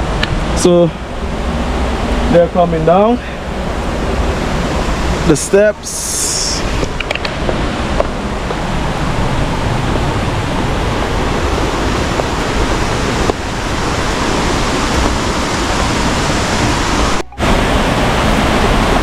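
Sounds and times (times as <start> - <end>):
waterfall rushing: 0.4 - 19.0.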